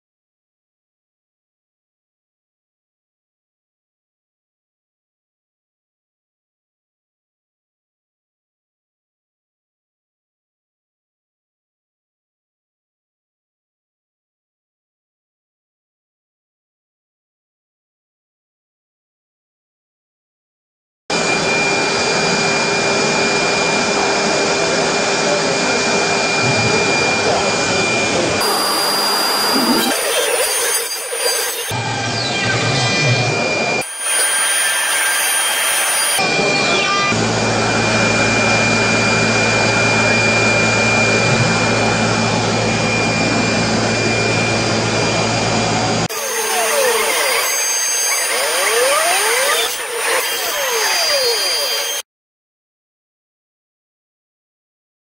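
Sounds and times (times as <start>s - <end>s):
milling machine spindle whine: 21.2s - 52.0s.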